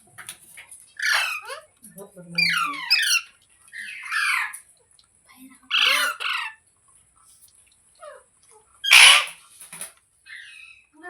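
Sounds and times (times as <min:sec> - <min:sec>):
parrot squawking: 0:01.0 - 0:01.7, 0:02.4 - 0:04.6, 0:05.7 - 0:06.6, 0:08.8 - 0:09.4, 0:10.3 - 0:10.8.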